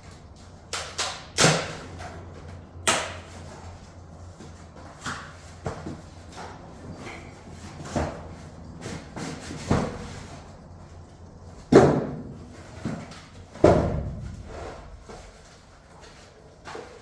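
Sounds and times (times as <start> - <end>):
thumps and clunks of objects: 11.6 - 17.0.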